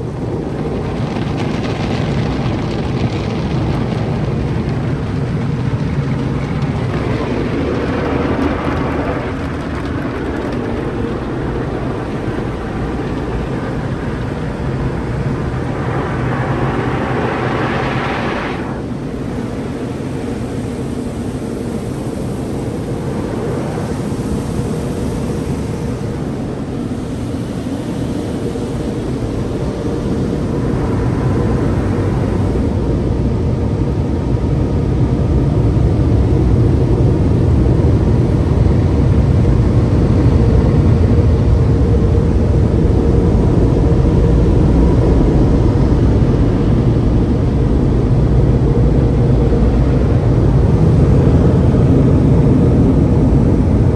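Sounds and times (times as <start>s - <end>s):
low hum: 0.0s - 53.9s
dryer blowers roaring: 6.6s - 33.5s, 36.2s - 39.2s.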